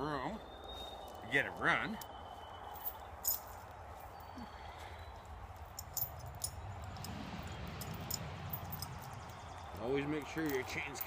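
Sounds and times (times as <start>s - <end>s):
metal chain clinking: 2.7s - 4.4s, 5.2s - 11.0s
steady low rumble: 2.8s - 10.0s.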